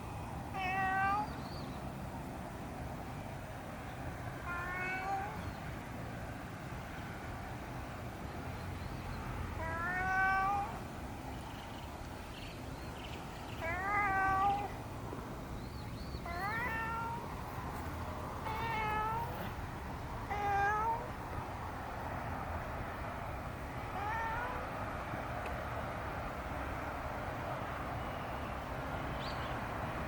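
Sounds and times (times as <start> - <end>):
cat meowing: 0.6 - 1.4, 4.4 - 5.4, 9.6 - 10.8, 13.6 - 14.8, 16.2 - 17.3, 18.4 - 19.6, 20.3 - 21.1, 23.9 - 24.7.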